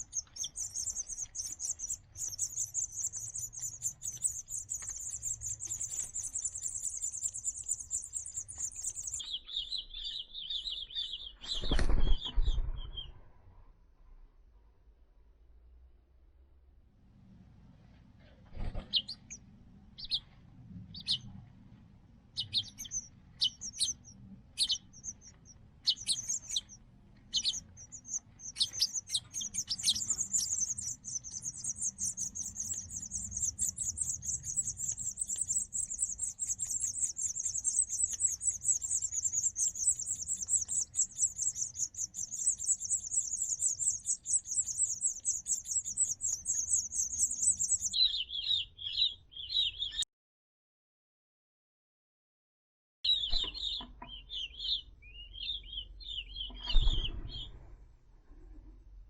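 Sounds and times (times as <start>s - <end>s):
nestlings begging chirps: 0.0s - 11.7s, 18.8s - 19.4s, 20.0s - 20.2s, 20.9s - 21.3s, 22.4s - 50.0s.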